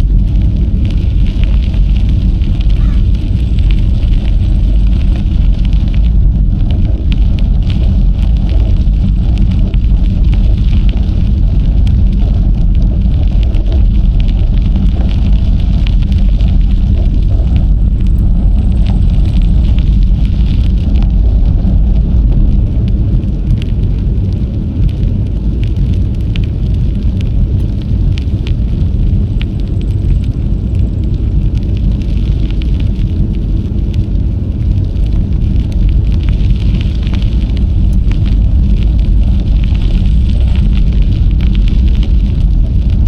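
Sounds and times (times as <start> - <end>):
bicycle ticks and rattles: 0.0 - 43.0
wind buffeting microphone: 0.0 - 43.0.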